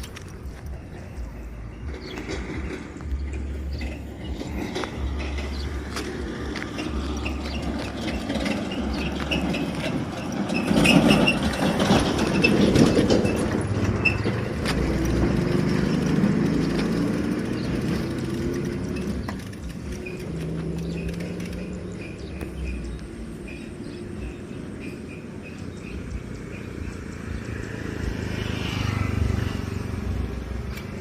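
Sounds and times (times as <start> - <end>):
motor vehicle passing: 0.0 - 31.0
bird chirps: 16.6 - 28.3.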